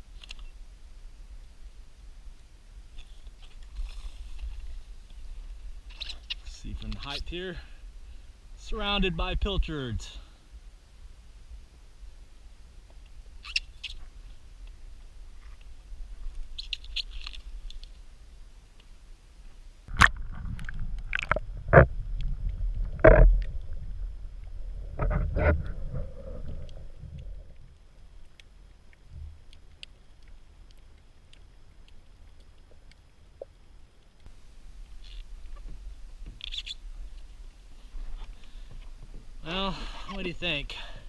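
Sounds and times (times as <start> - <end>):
low rumble: 19.9 - 27.8.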